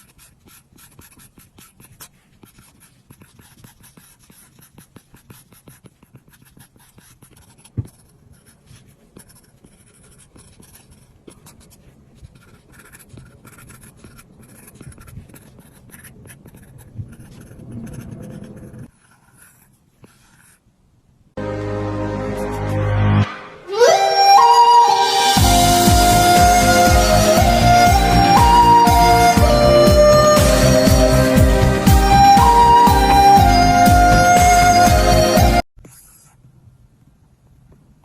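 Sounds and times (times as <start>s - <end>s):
stylus rubbing on screen: 0.0s - 20.7s, 35.8s - 36.6s.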